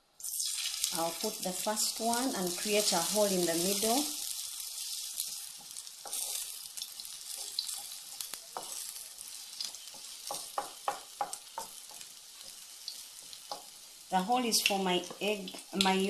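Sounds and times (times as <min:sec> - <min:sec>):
food sizzling in hot oil: 0:00.0 - 0:16.0
utensil tapping against pan: 0:09.9 - 0:12.1.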